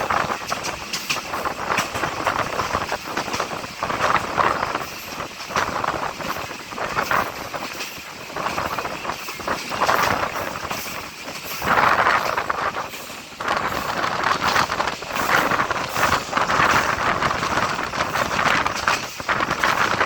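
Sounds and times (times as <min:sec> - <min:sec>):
train rumbling and rattling: 0:00.0 - 0:20.0.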